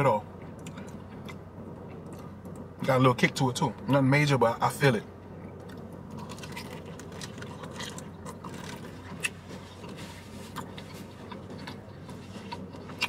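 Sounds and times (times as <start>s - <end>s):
steady low hum: 0.0s - 13.0s
man chewing: 0.4s - 2.7s, 5.4s - 13.0s.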